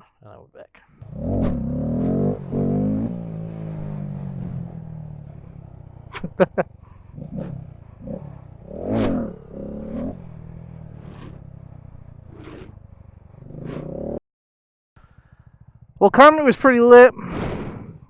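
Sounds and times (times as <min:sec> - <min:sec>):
car engines running: 0:00.9 - 0:14.2
engine revving: 0:00.9 - 0:14.2.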